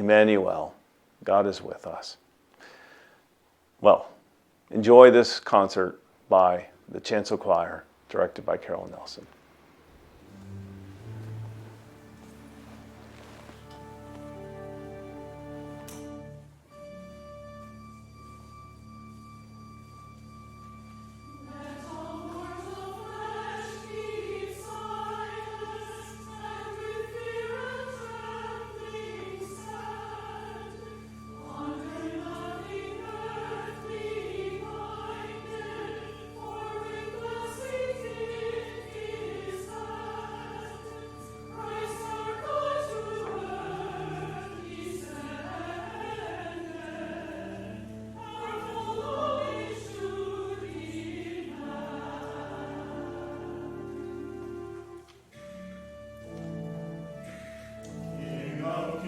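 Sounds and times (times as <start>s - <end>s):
sustained accompaniment notes: 8.6s - 59.0s
choir singing choral piece: 9.8s - 16.4s, 21.0s - 59.0s.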